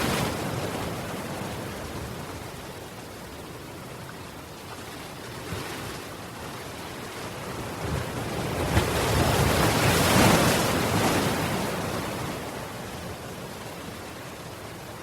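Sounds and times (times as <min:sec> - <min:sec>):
ocean waves breaking: 0:00.0 - 0:15.0.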